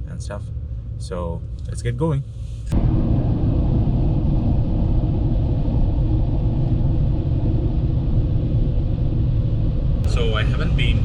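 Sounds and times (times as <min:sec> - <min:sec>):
road noise: 0:00.6 - 0:11.0
truck engine rumble: 0:02.7 - 0:11.0.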